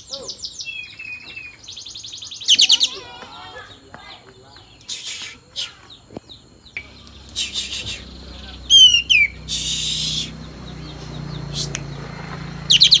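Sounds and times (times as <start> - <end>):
bird chirps: 0.0 - 13.0
harsh hissing rasps: 4.8 - 5.9, 7.1 - 13.0
steady low hum: 4.8 - 13.0.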